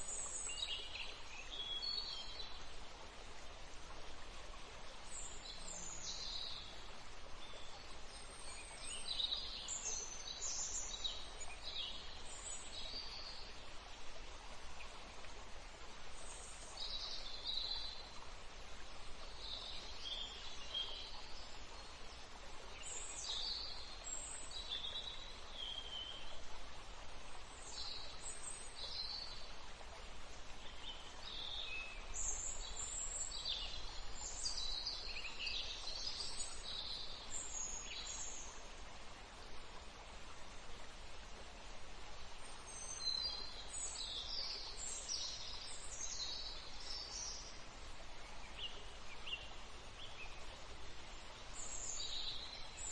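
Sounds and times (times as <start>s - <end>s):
steady background hiss: 0.0s - 52.9s.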